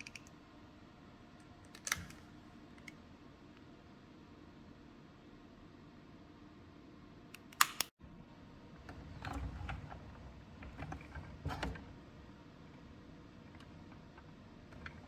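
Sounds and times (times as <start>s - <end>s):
plastic parts clicking: 0.0s - 0.3s.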